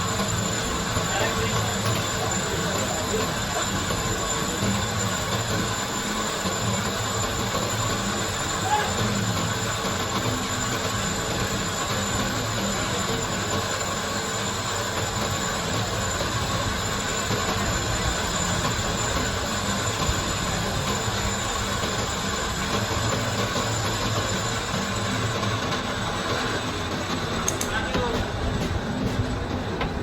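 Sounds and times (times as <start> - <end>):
workshop machine running: 0.0 - 30.0.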